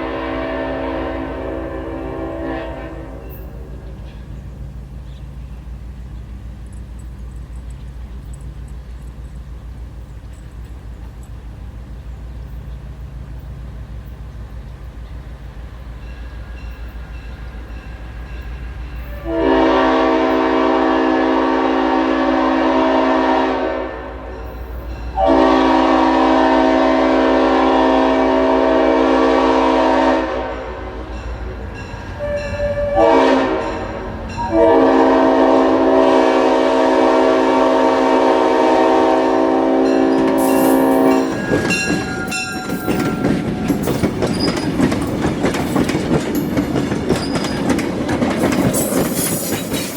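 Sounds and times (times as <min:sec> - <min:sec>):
locomotive air horn blasts: 0:00.0 - 0:03.8, 0:19.1 - 0:24.5, 0:25.2 - 0:31.2, 0:32.2 - 0:43.8
locomotive engine drone: 0:00.0 - 0:22.0, 0:23.2 - 0:49.2
train wheels clacking on rails: 0:02.6 - 0:20.8, 0:39.8 - 0:49.9.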